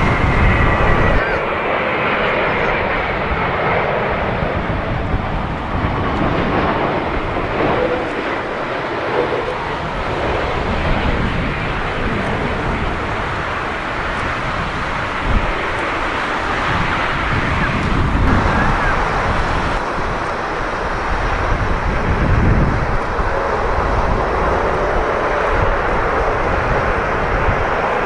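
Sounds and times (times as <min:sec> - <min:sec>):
gusty wind on microphone: 0:00.0 - 0:28.0
jet engine noise: 0:00.0 - 0:28.0.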